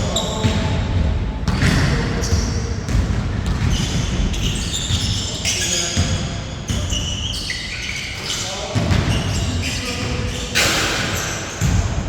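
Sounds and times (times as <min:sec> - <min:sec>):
sneaker squeaks: 0:00.0 - 0:00.7, 0:01.5 - 0:12.0
basketball bouncing: 0:00.4 - 0:05.1, 0:10.0 - 0:12.0
players' voices: 0:04.4 - 0:12.0.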